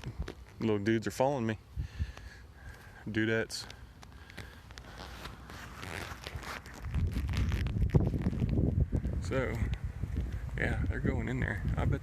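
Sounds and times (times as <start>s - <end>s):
rustling: 2.0s - 8.7s
soft footsteps: 3.6s - 8.6s.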